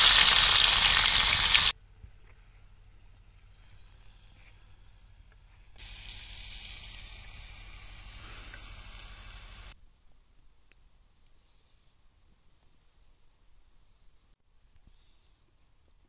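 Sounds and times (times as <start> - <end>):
food sizzling in a pan: 0.0 - 1.7, 5.8 - 9.8.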